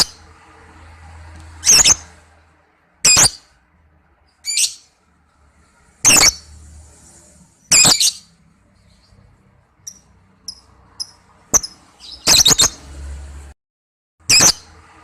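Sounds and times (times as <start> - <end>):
bird shrill calls: 1.6 - 2.1, 4.4 - 4.9, 7.7 - 8.3, 9.9 - 12.8.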